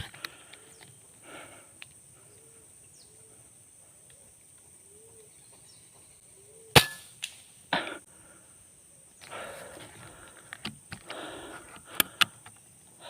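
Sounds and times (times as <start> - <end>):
high insect whine: 0.0 - 13.0
air rifle shot: 6.8 - 7.2.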